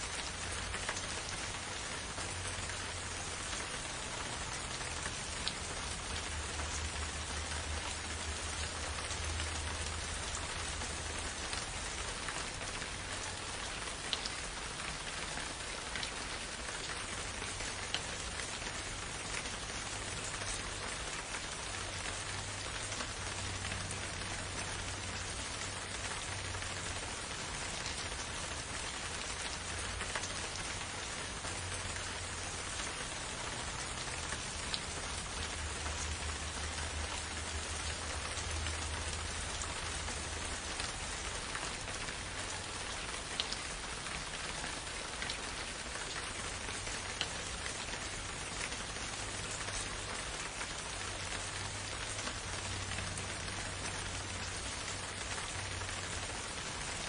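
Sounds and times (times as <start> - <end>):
steady rain in a forest: 0.0 - 57.0.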